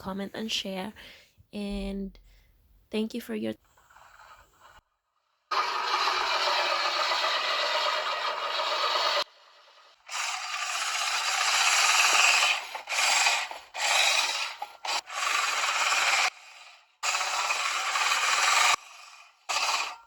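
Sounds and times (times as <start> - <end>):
reel lawn mower whirring: 5.5 - 20.0.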